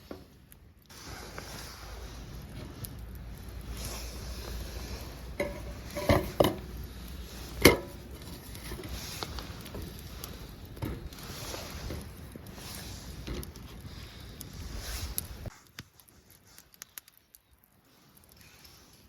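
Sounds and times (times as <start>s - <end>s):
metal cookware clinking: 5.4s - 6.7s, 7.6s - 8.1s.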